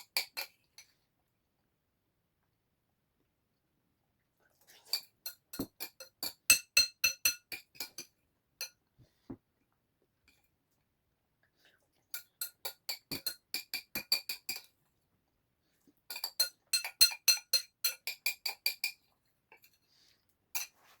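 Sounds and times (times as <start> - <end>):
utensil clinking on ceramic dish: 4.9 - 8.8, 12.2 - 14.7, 16.1 - 19.0, 20.6 - 20.9.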